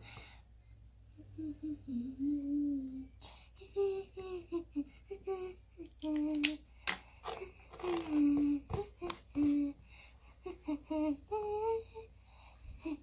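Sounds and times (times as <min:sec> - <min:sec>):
girl humming a tune: 0:01.1 - 0:06.6, 0:07.2 - 0:09.8, 0:10.4 - 0:12.1, 0:12.7 - 0:13.0.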